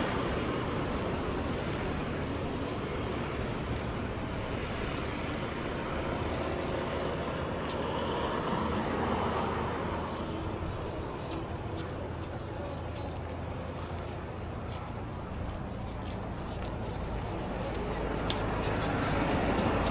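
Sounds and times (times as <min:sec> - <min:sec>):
road traffic: 0:00.0 - 0:19.9
vehicle passing: 0:14.9 - 0:19.9.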